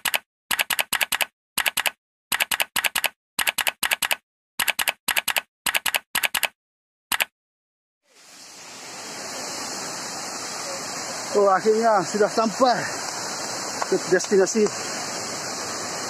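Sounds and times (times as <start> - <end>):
typewriter keystrokes: 0.0 - 7.3.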